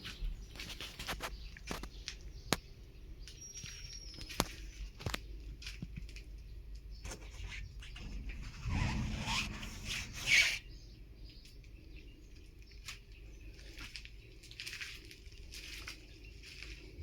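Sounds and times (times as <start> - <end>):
material rustling and scraping: 7.0 - 10.7
rasping scrape: 7.1 - 10.7.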